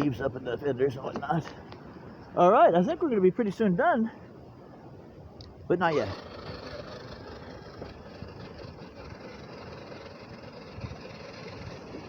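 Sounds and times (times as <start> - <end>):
electric motor whining: 5.9 - 12.0.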